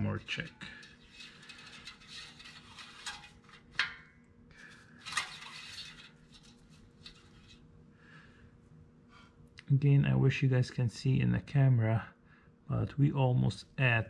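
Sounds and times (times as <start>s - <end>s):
dipstick rattling and scraping: 0.0s - 4.0s, 4.6s - 7.7s.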